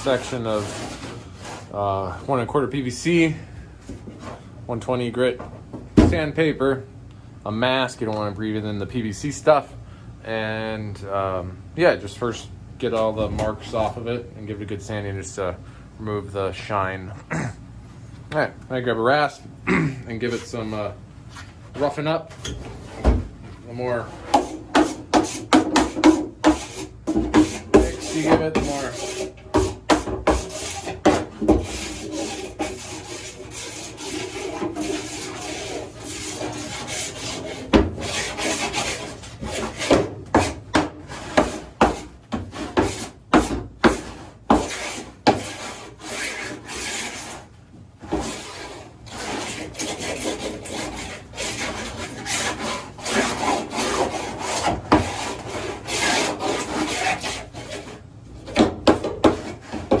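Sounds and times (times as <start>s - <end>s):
rasp scraping plastic pipe: 0.0s - 1.8s, 23.7s - 60.0s.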